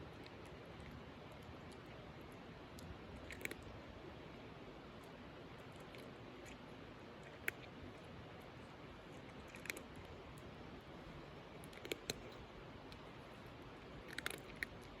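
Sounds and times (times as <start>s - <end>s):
cat chewing crunchy food: 0.0s - 15.0s.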